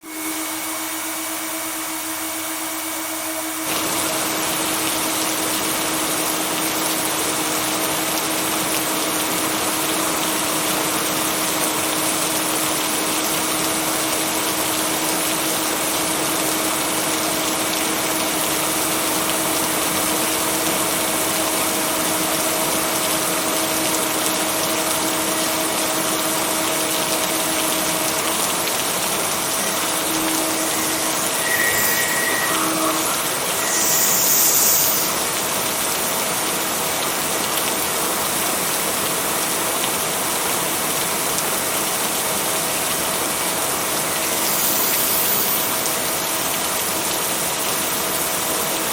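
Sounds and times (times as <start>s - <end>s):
steady rain: 2.9s - 48.9s
low humming tones: 27.4s - 35.9s.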